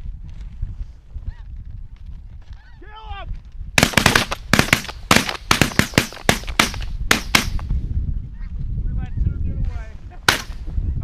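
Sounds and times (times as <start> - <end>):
shotgun fire: 3.8 - 7.7, 10.3 - 10.6.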